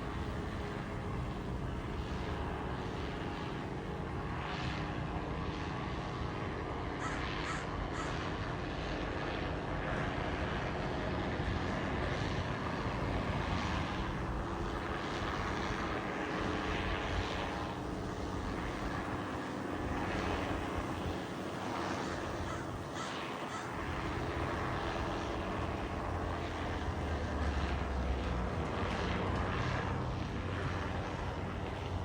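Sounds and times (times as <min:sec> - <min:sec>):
crows cawing: 0:07.0 - 0:08.3, 0:22.0 - 0:24.2.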